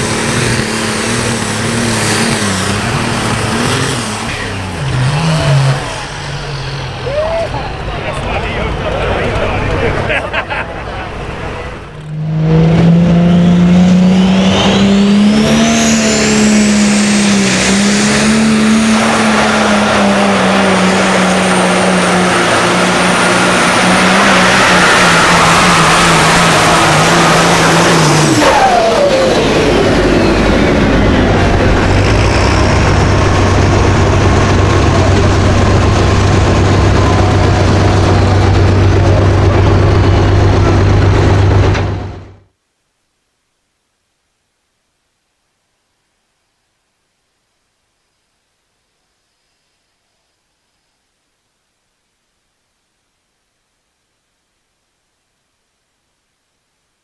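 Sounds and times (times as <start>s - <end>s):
tractor engine running with whine: 0.0s - 42.5s.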